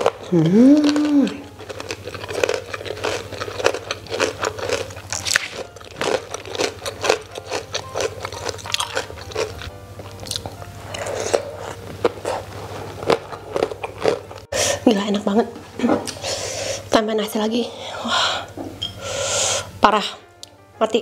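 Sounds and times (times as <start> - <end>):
crunchy chewing: 0.0 - 14.6.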